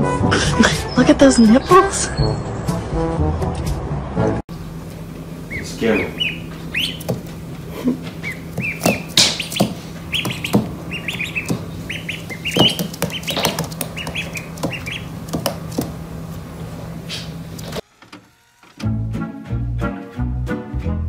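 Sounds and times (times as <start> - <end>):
steady low hum: 4.0 - 17.8
ducklings peeping: 5.4 - 16.0.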